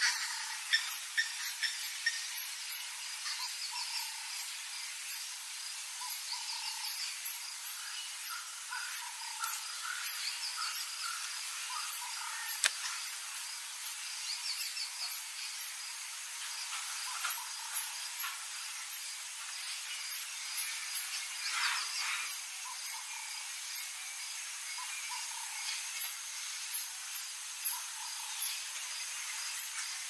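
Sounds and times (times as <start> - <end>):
bird calls and trills: 0.0 - 30.0
sharp click: 12.5 - 12.8.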